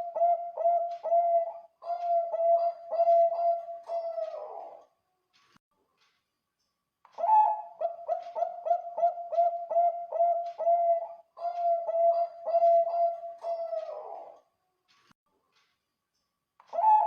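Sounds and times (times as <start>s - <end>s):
dove cooing: 0.0s - 4.8s, 7.2s - 14.4s, 16.7s - 17.0s.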